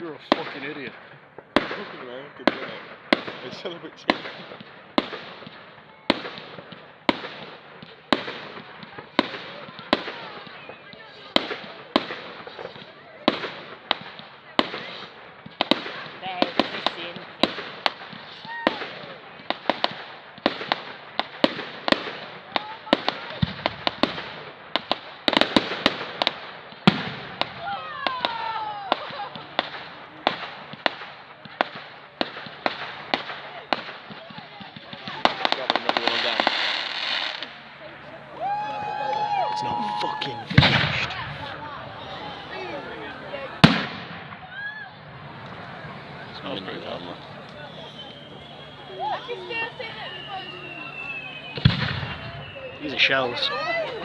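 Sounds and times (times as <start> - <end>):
firework shells bursting: 0.0 - 44.5, 45.1 - 53.9
firework pops and crackle: 0.1 - 54.0
deep firework bang: 39.3 - 42.7, 43.4 - 53.1.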